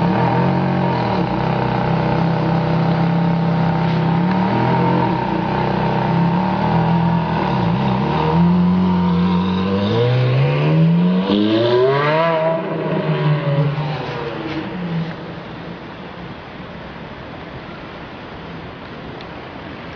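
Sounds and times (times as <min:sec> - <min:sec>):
sports car engine revving: 0:00.0 - 0:15.2.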